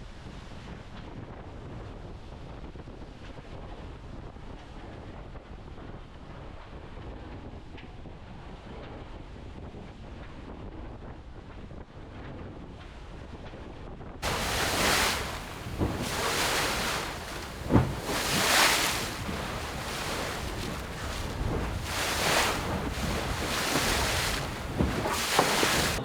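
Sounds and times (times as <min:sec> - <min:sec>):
sea water rushing past boat: 0:14.2 - 0:26.0
wind buffeting microphone: 0:14.2 - 0:26.0.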